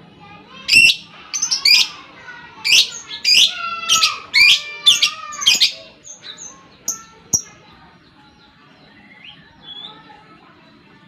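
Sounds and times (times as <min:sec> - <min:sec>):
lovebird screeching: 0:00.7 - 0:02.0, 0:02.6 - 0:06.5.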